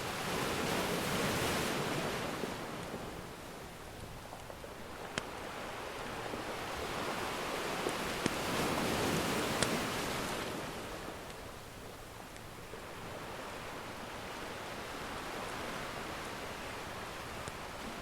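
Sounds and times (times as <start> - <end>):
ocean wave breaking: 5.2 - 11.2.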